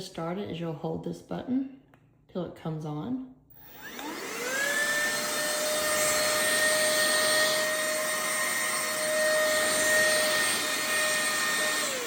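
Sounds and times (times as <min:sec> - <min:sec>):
handheld vacuum motor whine: 0:03.5 - 0:12.0.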